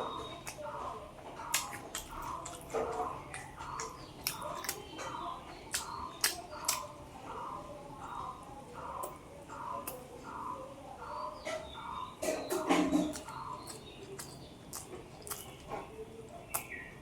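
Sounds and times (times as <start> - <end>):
person chewing food: 0.0 - 17.0
sharp mouth clicks: 13.1 - 15.6.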